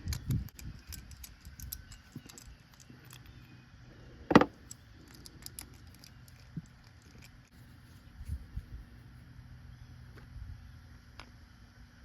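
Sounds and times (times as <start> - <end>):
small metal parts clinking: 0.0 - 3.6, 4.5 - 7.6.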